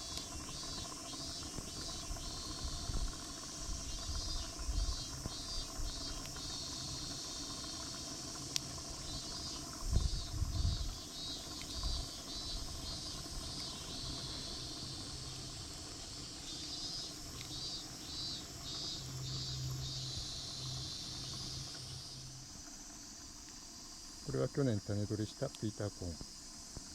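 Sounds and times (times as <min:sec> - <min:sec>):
insect calling in pulses: 0:00.0 - 0:26.9
outdoor hiss: 0:00.0 - 0:26.9
low hum: 0:13.4 - 0:23.4.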